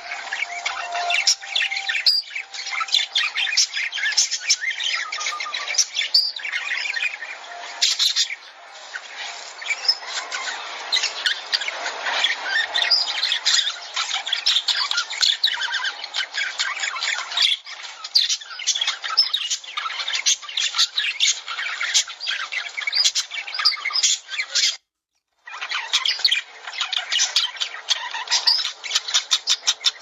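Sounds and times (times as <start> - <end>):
lovebirds chirping and squawking: 0.0 - 24.9, 25.5 - 30.0.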